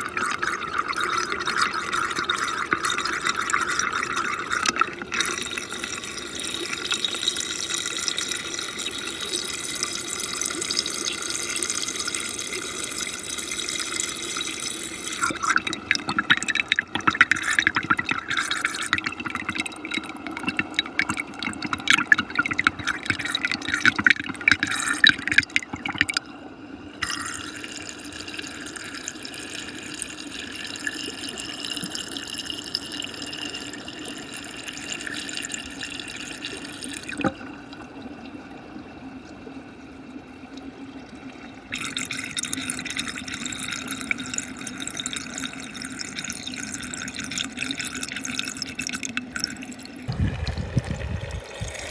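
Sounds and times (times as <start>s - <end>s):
water churning in a whirlpool: 0.0s - 51.9s.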